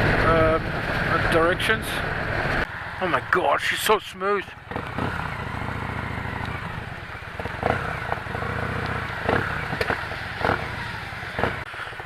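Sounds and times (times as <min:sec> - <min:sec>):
v-twin engine running at low revs: 0:04.5 - 0:12.0.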